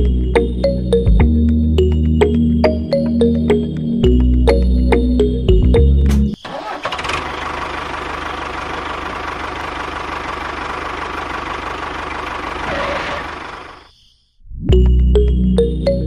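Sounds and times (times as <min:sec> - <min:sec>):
tractor engine chugging: 0:06.4 - 0:13.8.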